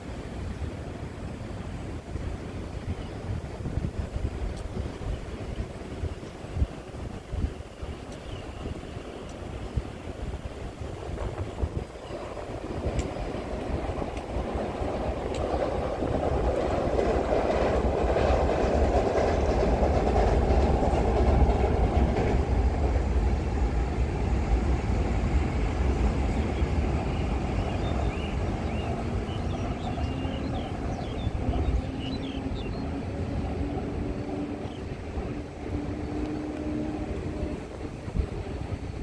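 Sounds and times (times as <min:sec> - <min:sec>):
train rumbling past: 0:00.0 - 0:39.0.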